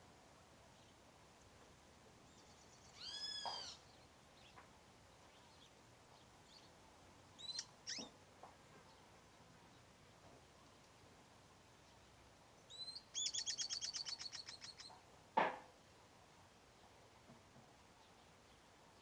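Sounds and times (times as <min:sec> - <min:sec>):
birds calling: 0:02.9 - 0:03.9, 0:07.4 - 0:08.2.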